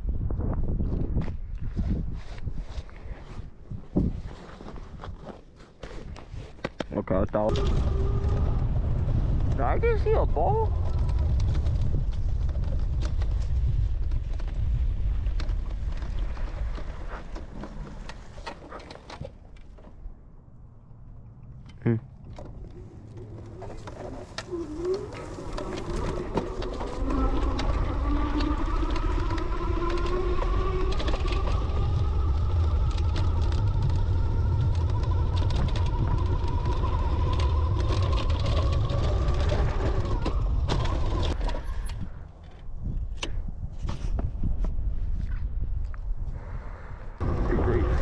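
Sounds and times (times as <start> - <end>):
wind rumbling on microphone: 0.0 - 5.4, 6.0 - 48.0
motor whine rising in pitch: 7.5 - 9.8, 22.6 - 41.4.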